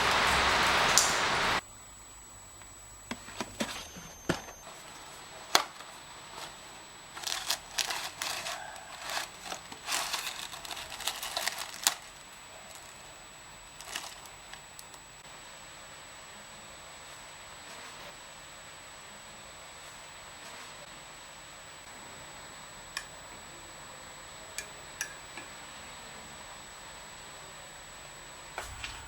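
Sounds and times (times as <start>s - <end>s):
crinkling and rustling handling noise: 3.1s - 15.2s.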